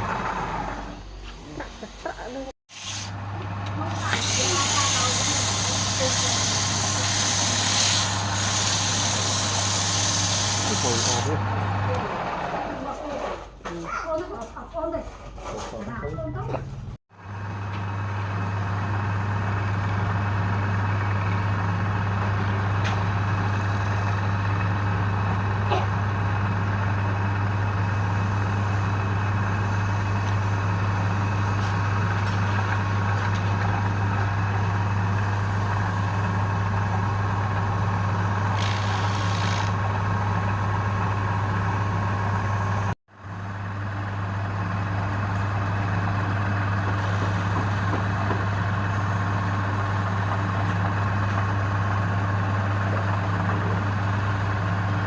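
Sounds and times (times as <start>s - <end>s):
wood lathe motor humming: 3.7s - 11.4s, 35.2s - 43.0s.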